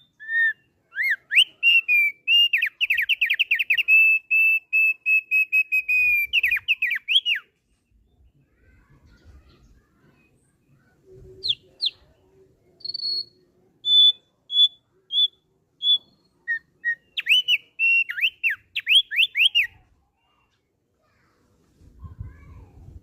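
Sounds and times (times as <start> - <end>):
bird whistling: 0.0 - 7.5, 11.4 - 12.0, 12.8 - 19.8.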